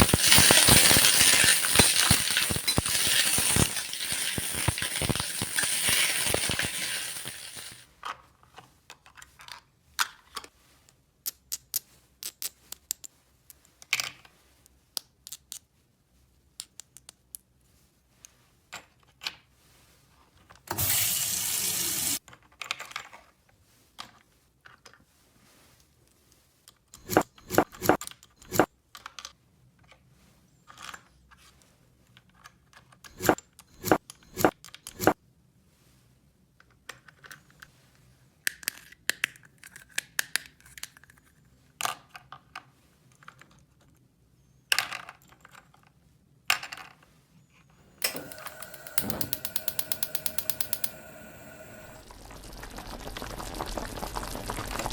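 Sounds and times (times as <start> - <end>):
plastic toy parts clicking: 0.0 - 7.8, 48.0 - 51.9
rustling: 0.0 - 7.8
rapid ratcheting click: 48.0 - 52.0.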